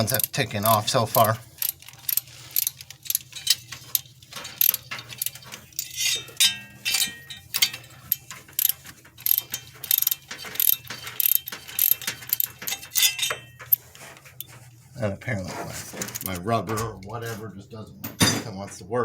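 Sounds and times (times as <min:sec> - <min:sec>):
ratchet wrench clicking: 0:00.0 - 0:13.8, 0:16.0 - 0:16.4
metal tool clinks: 0:02.6 - 0:13.8.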